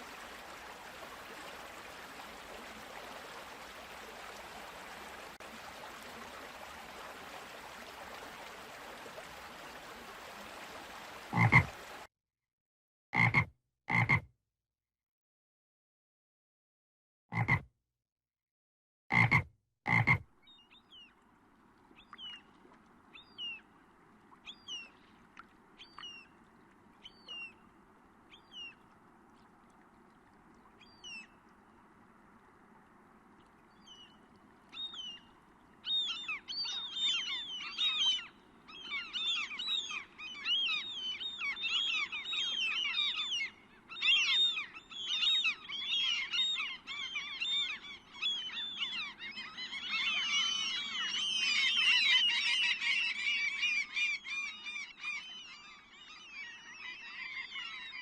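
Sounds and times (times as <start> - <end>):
frogs croaking and chirping: 11.3 - 11.9.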